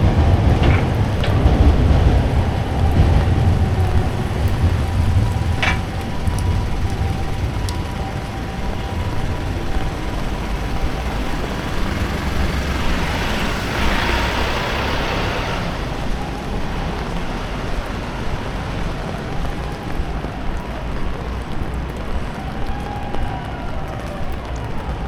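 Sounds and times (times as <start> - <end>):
low traffic rumble: 0.0 - 25.0
steady rain: 0.0 - 25.0
vehicle tyre hiss on wet street: 9.0 - 24.1.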